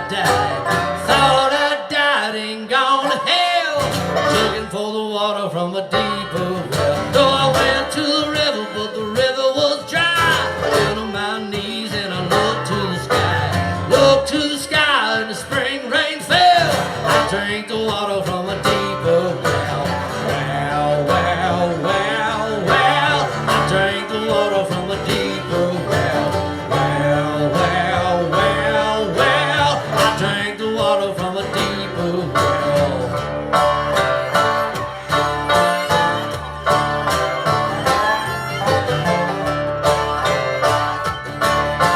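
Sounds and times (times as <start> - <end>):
banjo picking: 0.0 - 41.9
bluegrass band playing: 0.0 - 41.9.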